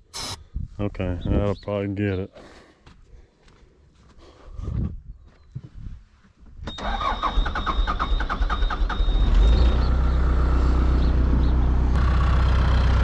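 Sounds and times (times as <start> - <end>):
diesel engine cranking: 6.7 - 13.0
starter whine: 6.7 - 13.0
diesel engine idling: 8.4 - 13.0.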